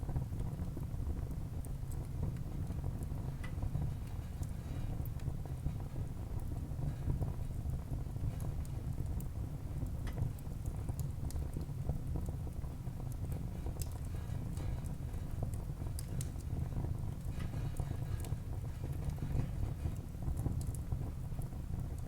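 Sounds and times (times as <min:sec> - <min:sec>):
fire flames rumbling: 0:00.0 - 0:22.0
wood crackling and popping: 0:00.2 - 0:22.0.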